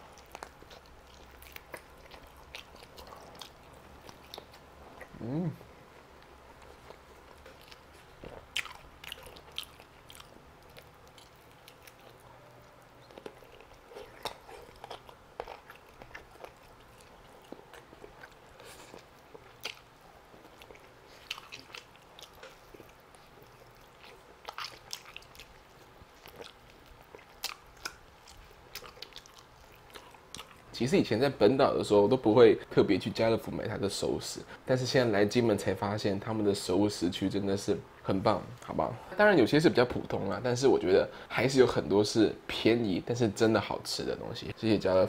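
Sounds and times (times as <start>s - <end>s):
chewing and lip smacks: 0.0s - 5.2s, 6.0s - 30.7s.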